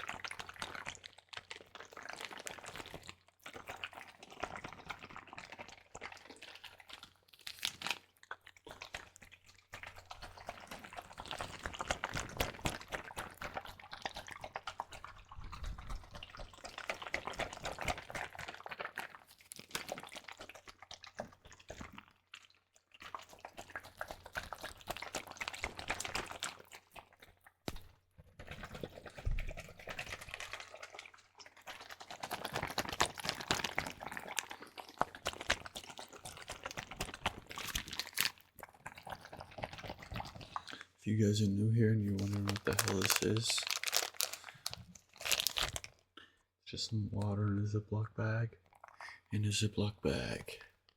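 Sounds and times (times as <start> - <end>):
water sloshing in plastic bag: 0.0 - 46.2
plastic crinkling: 30.2 - 38.5, 42.0 - 46.1.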